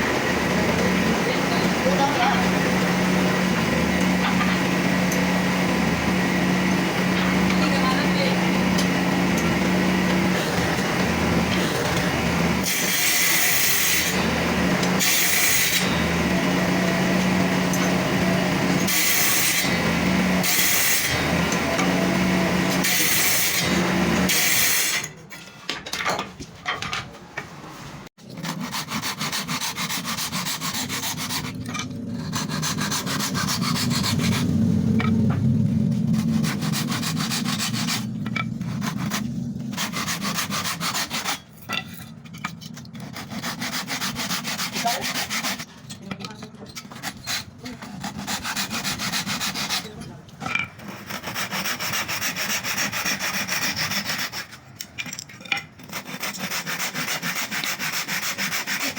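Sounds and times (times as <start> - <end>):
sanding on wood: 0.0 - 24.7, 28.3 - 31.6, 32.2 - 34.7, 36.0 - 41.4, 43.0 - 45.8, 46.8 - 50.1, 50.8 - 54.6, 55.8 - 58.9
power tool humming: 0.0 - 25.1, 28.5 - 41.3.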